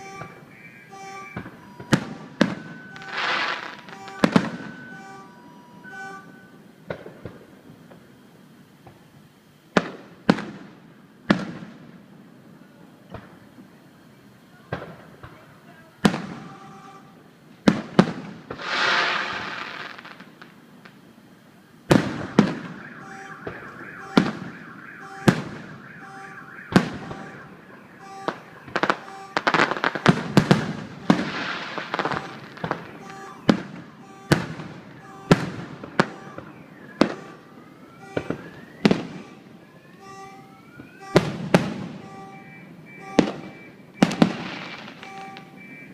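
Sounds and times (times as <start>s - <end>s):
firework bangs: 0.0s - 5.3s, 5.9s - 8.1s, 9.7s - 12.0s, 14.7s - 21.0s, 21.9s - 45.9s
repeating beep: 0.0s - 6.6s, 22.3s - 30.1s, 31.0s - 39.4s, 42.0s - 45.9s
firework whistles: 0.0s - 8.3s, 18.0s - 21.0s, 21.9s - 45.9s
firework crackling: 0.0s - 45.9s.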